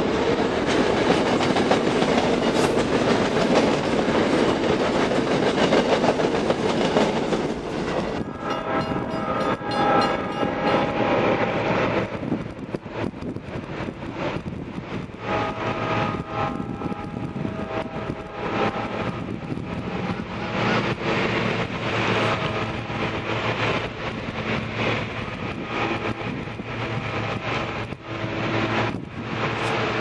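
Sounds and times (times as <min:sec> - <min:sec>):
train wheels clattering on rails: 0:00.0 - 0:30.0
high steady tones: 0:08.0 - 0:12.2.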